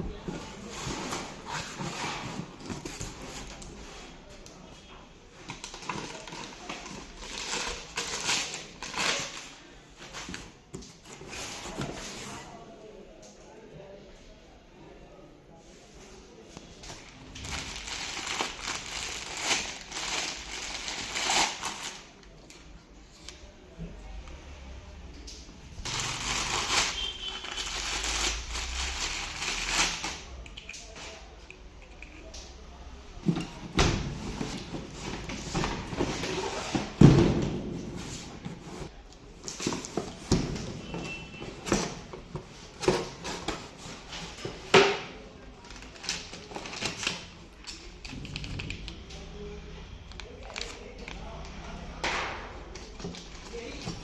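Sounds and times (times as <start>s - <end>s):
packaging rustling and crinkling: 16.8s - 22.2s, 25.8s - 30.3s.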